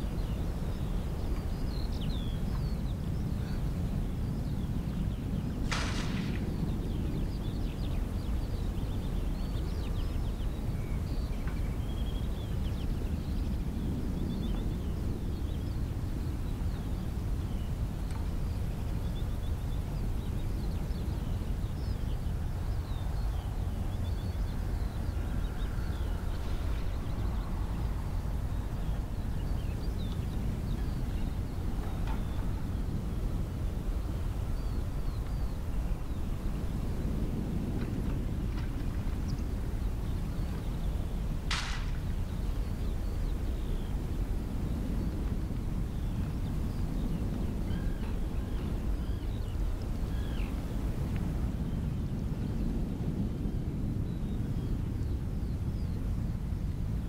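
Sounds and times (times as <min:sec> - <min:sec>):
birds chirping: 0:00.0 - 0:51.8.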